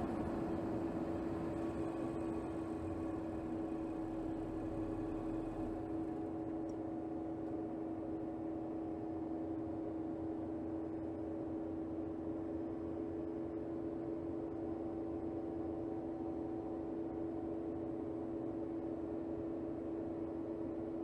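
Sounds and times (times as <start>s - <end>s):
car engine humming: 0.0s - 6.3s.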